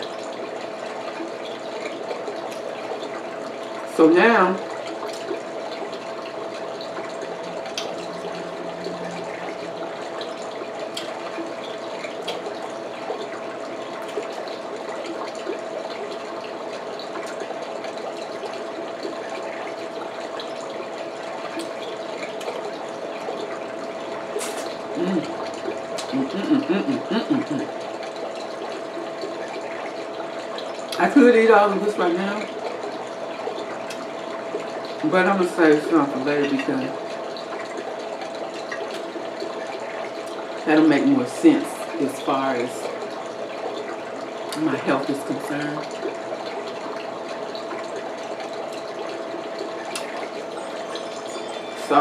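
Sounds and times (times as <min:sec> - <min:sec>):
faint steady hum: 0:00.0 - 0:52.0
mouth sounds: 0:24.4 - 0:25.4.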